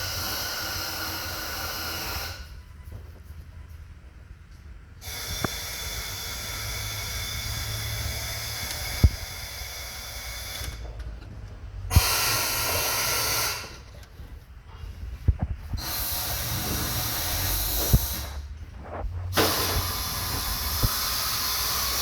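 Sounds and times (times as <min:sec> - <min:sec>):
long hissing bursts: 0:00.0 - 0:02.6, 0:05.0 - 0:11.0, 0:11.8 - 0:13.9, 0:15.7 - 0:18.5, 0:19.2 - 0:22.0.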